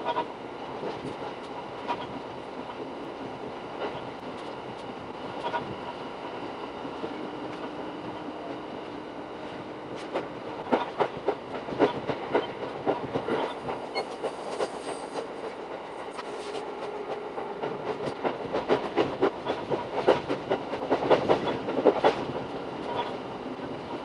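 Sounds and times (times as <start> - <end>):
electric train rumbling: 0.0 - 24.0.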